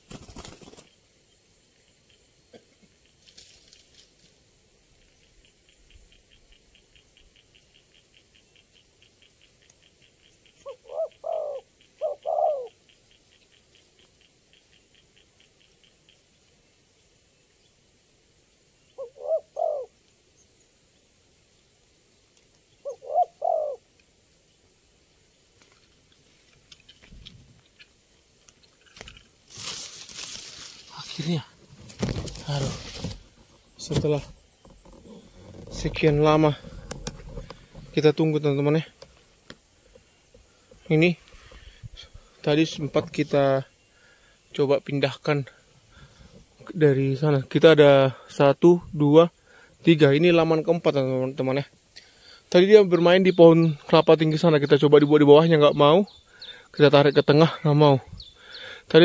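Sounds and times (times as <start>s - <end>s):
soft rustle: 3.1s - 5.2s, 25.5s - 43.3s
faint fast ticking: 4.7s - 17.2s
dove cooing: 5.8s - 15.7s, 19.0s - 20.0s, 22.8s - 23.9s.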